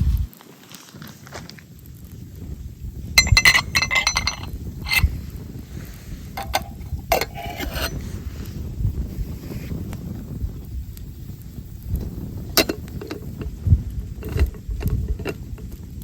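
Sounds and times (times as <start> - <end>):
steady low rumble: 1.7 - 16.0
hard items clinking together: 3.2 - 5.1, 6.4 - 7.9.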